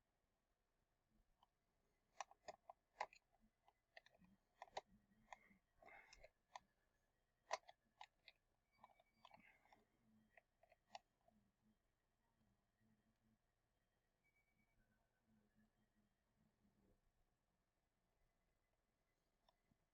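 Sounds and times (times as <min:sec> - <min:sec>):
plastic parts clicking: 0:02.1 - 0:06.8, 0:07.4 - 0:11.2.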